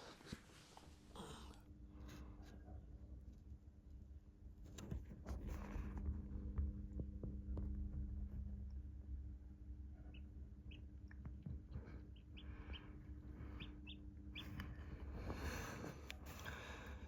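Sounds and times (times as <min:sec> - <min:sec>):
steady low hum: 0:00.0 - 0:17.0
chicks peeping: 0:09.9 - 0:16.4.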